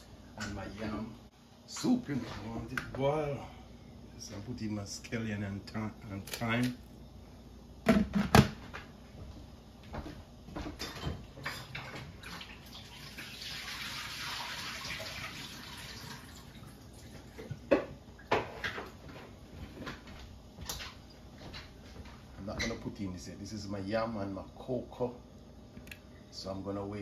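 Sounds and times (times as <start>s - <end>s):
pots and utensils clinking: 10.7s - 12.4s
kitchen water running: 11.5s - 17.6s.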